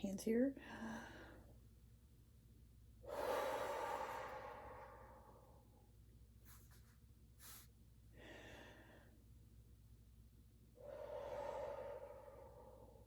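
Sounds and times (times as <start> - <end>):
person breathing deeply: 3.0 - 5.8, 7.4 - 9.2, 10.8 - 13.0.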